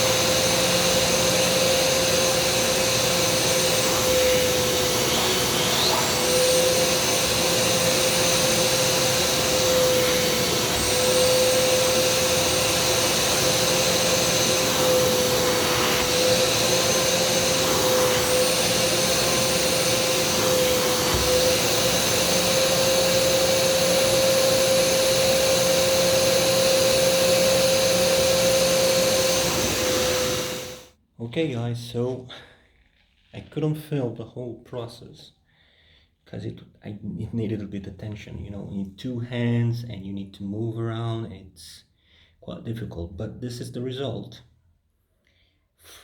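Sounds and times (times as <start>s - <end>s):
carpet cleaner motor hum: 0.0s - 30.9s.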